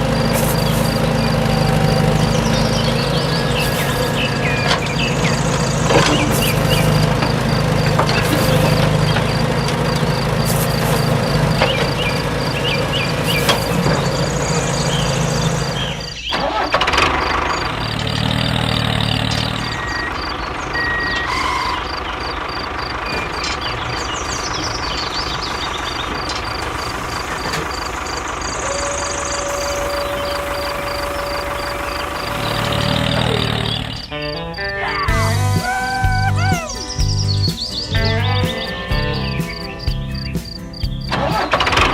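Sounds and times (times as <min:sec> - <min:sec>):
vehicle engine running: 0:00.0 - 0:41.9
steady tone: 0:26.8 - 0:34.1.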